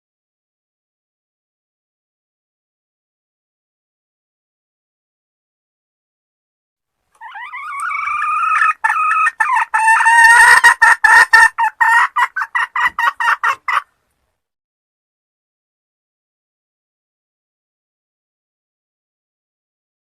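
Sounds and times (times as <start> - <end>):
hen cackling and clucking: 7.2 - 14.0.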